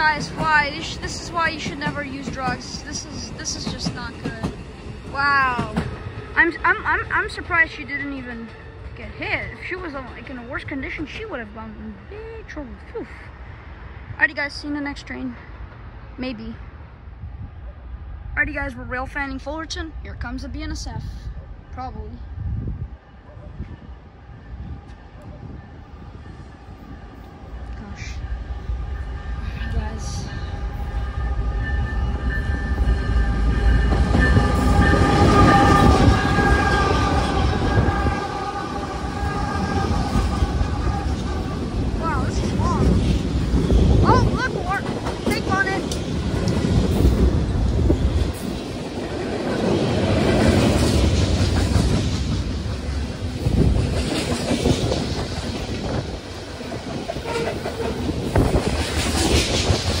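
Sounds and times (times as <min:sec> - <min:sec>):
freight train rumbling past: 0:00.0 - 1:00.0
high ringing tones: 0:23.0 - 0:38.3.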